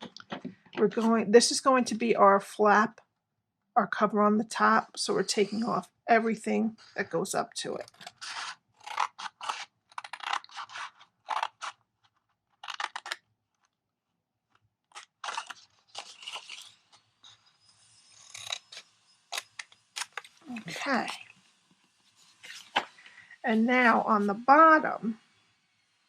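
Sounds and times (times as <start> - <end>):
scissors snipping paper: 7.6 - 13.7, 14.9 - 16.8.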